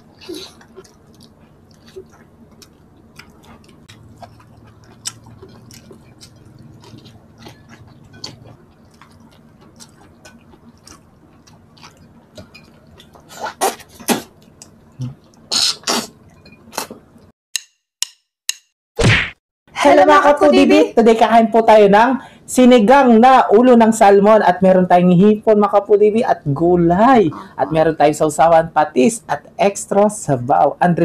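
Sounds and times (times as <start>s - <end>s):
wet mouth chewing smacks: 0.0s - 16.1s.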